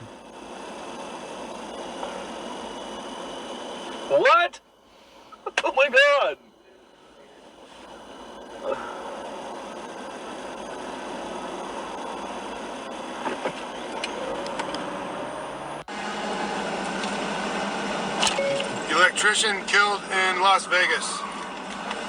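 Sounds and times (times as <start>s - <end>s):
vehicle road and engine noise: 8.6s - 22.0s.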